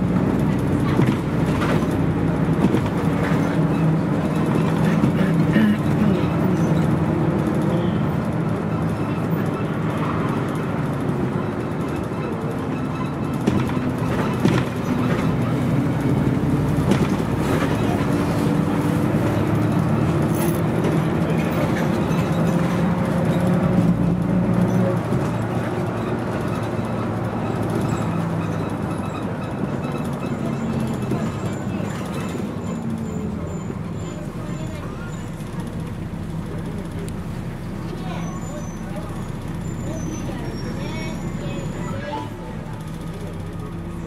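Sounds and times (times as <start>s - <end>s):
bus diesel engine running: 0.0s - 44.0s.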